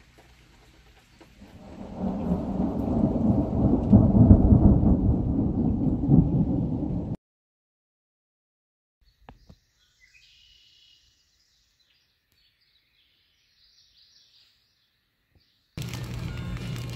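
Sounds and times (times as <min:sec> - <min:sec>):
rain and thunder: 0:01.4 - 0:07.2
faint bird chirps: 0:09.0 - 0:15.8.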